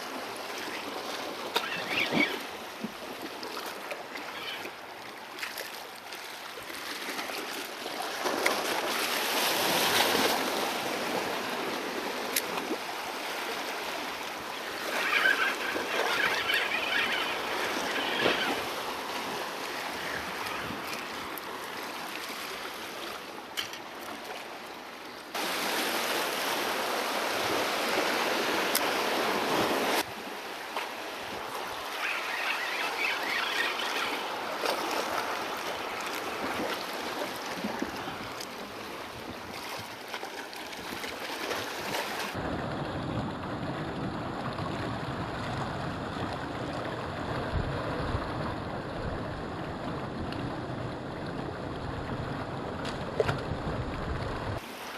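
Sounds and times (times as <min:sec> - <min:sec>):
sea waves washing: 0:00.0 - 0:24.6, 0:25.3 - 0:50.2
wind noise on microphone: 0:42.4 - 0:54.6.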